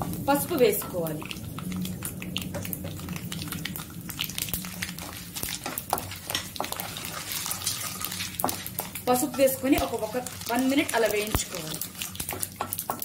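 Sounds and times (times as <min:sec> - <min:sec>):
low steady hum: 0:00.0 - 0:12.1
spices crackling in hot oil: 0:00.0 - 0:13.0
wooden spatula scraping a pan: 0:04.8 - 0:13.0.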